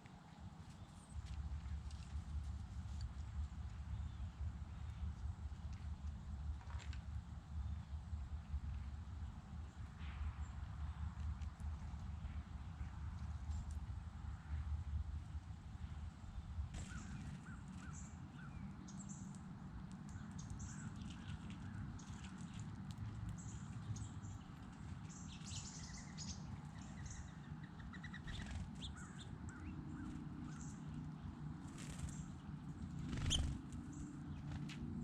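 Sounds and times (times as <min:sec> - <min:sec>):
birds chirping: 0:16.8 - 0:19.4, 0:23.4 - 0:34.7.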